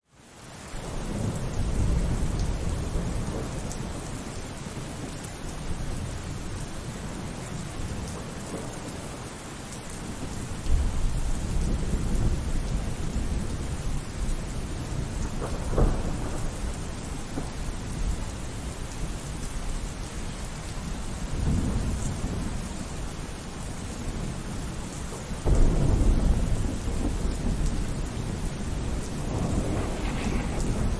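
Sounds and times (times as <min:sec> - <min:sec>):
steady rain: 0:00.0 - 0:30.9
rolling thunder: 0:10.2 - 0:18.6, 0:25.4 - 0:30.9.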